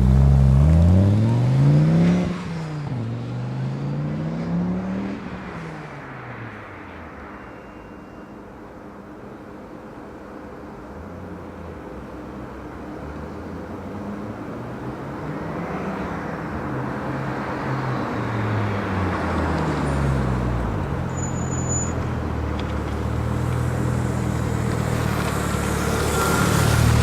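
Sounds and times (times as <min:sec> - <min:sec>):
car engine and exhaust driving: 0:00.0 - 0:27.0.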